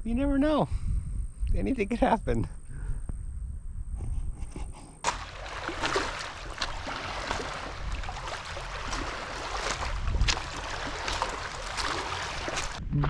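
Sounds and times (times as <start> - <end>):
water lapping and splashing: 5.0 - 12.8.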